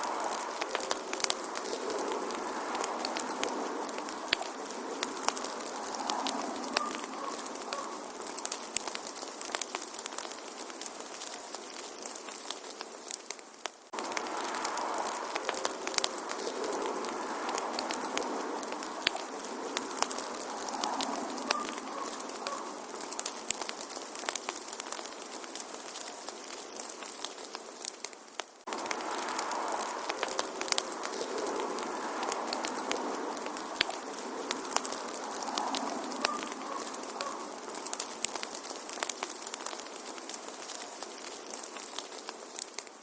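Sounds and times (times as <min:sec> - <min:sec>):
hiss of burning: 0:00.0 - 0:43.0
wood fire crackling and popping: 0:00.0 - 0:43.0.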